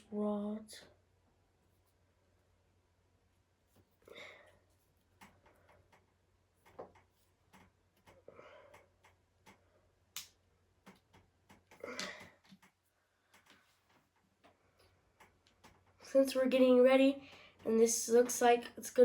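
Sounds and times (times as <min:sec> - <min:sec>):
small wooden parts clicking: 0:05.2 - 0:16.1.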